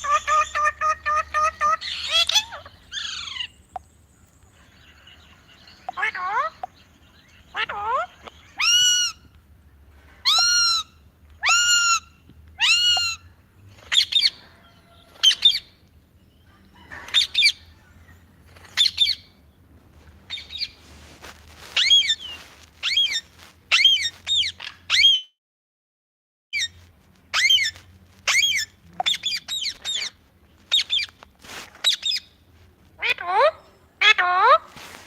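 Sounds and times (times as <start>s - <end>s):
parrot squawking: 0.0s - 3.5s, 10.3s - 13.2s, 21.6s - 25.3s, 26.6s - 31.1s.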